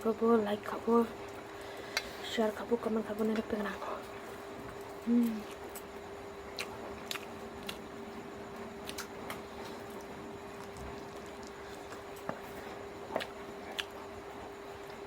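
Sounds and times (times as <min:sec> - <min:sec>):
steady electrical hum: 0:00.0 - 0:15.0
person chewing: 0:06.5 - 0:07.9, 0:08.8 - 0:14.1.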